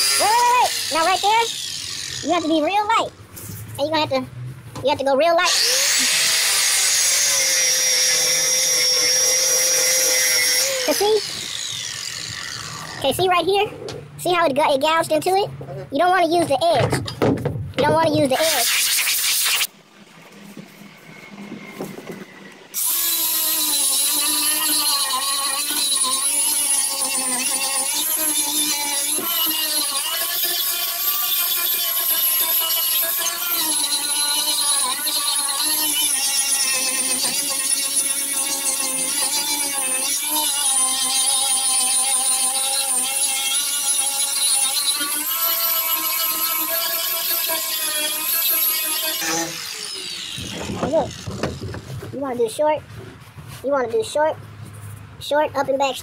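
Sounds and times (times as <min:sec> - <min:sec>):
power sander whining: 0:00.0 - 0:02.7, 0:05.5 - 0:13.2, 0:20.3 - 0:52.2.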